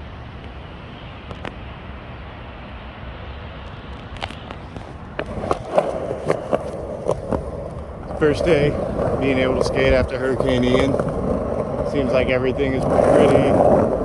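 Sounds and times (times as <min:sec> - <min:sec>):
skateboard rolling on pavement: 0:00.0 - 0:14.0
skateboard clacks: 0:05.2 - 0:14.0.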